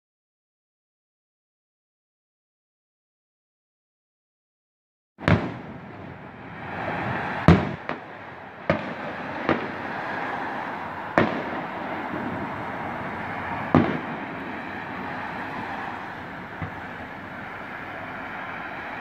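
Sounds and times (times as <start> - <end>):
distant fireworks bangs: 5.2 - 19.0.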